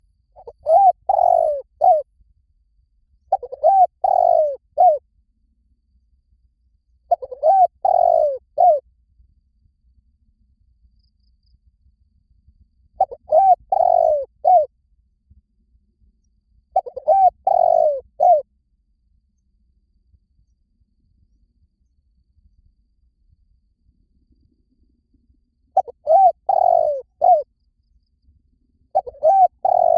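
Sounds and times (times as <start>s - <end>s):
dove cooing: 0.4s - 2.1s, 3.3s - 5.0s, 7.1s - 8.8s, 13.0s - 14.7s, 16.8s - 18.4s, 25.8s - 27.4s, 29.0s - 29.9s.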